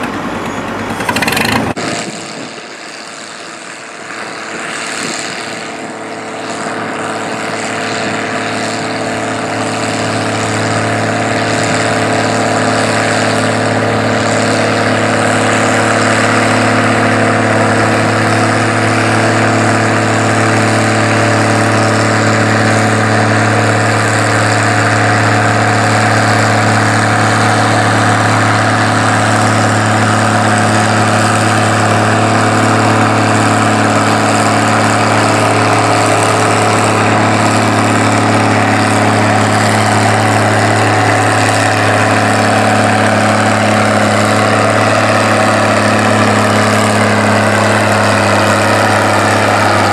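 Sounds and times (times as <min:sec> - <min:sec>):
tractor engine droning: 0:00.0 - 0:49.9.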